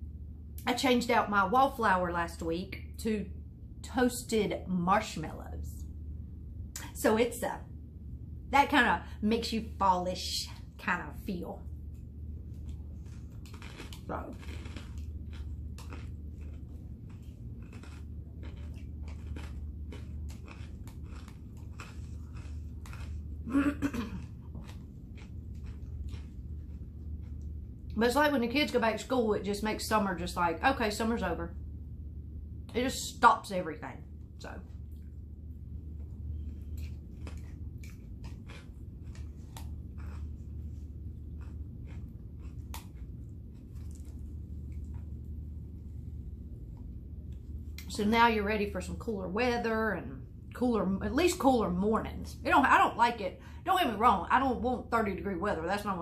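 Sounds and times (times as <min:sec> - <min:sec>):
low steady hum: 0:00.0 - 0:56.0
person chewing food: 0:11.9 - 0:27.8, 0:35.9 - 0:45.8.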